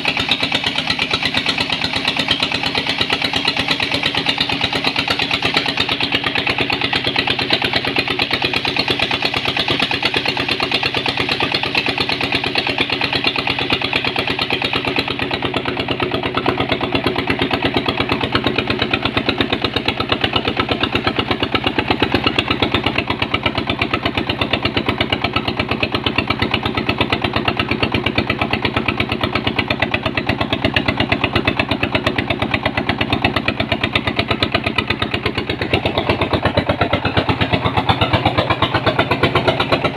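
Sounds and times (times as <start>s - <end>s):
machine engine running: 31.3s - 39.9s.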